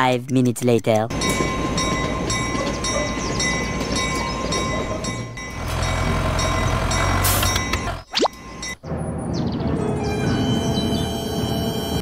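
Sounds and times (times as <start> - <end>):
train clatter: 1.1 - 8.0
train rolling rumble: 1.1 - 12.0.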